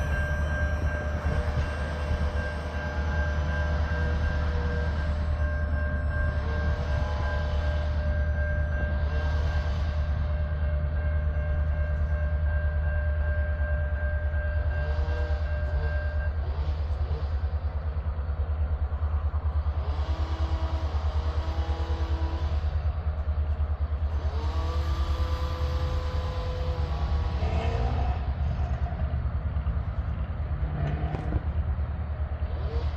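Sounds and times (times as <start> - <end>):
wavering squeals: 0.0 - 16.4
high whine: 0.0 - 17.7
freight train rumble: 0.0 - 32.9.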